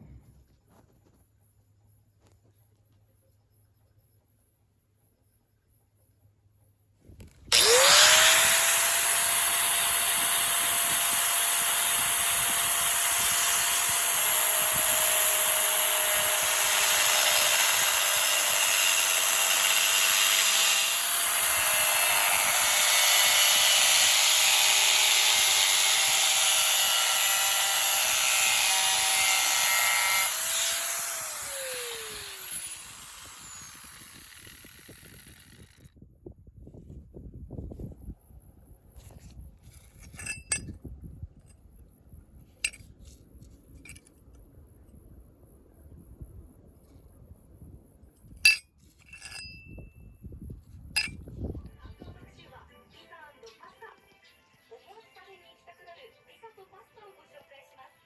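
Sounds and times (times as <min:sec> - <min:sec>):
electric power tool running: 0:07.5 - 0:35.9.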